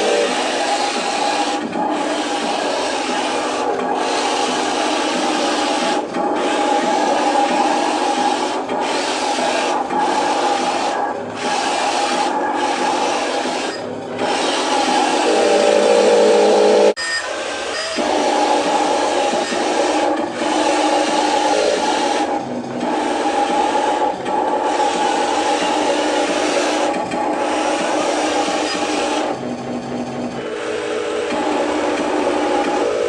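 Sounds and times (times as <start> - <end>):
electric motor and gears whining: 0.0 - 29.4
high steady whine: 14.6 - 17.3.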